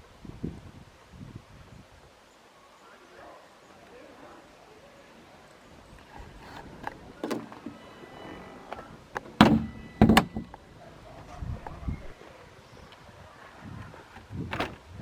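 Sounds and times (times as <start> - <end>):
clicks and knocks of car fittings: 9.2 - 10.6
loud thuds: 9.2 - 10.6.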